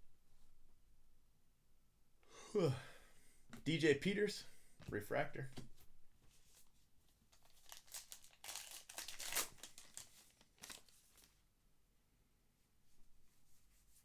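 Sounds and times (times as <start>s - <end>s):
card pack wrapper crinkling: 7.3s - 11.4s.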